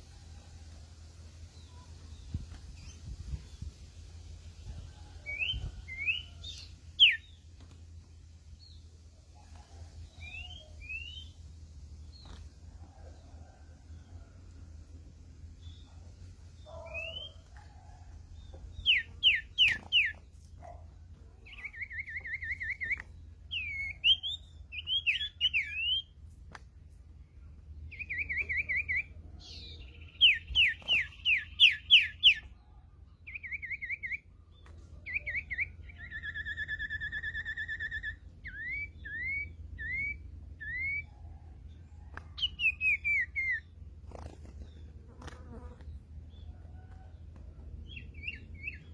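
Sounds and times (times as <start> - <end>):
bird whistling calls: 5.3 - 7.3, 16.8 - 17.4, 18.8 - 20.2, 35.1 - 41.1.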